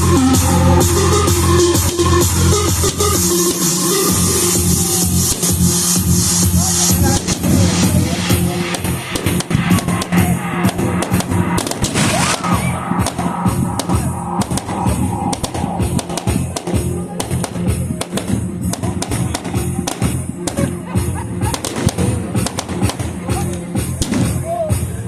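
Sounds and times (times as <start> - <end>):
music with bass line: 0.0 - 25.0
fireworks bangs and crackles: 2.7 - 25.0.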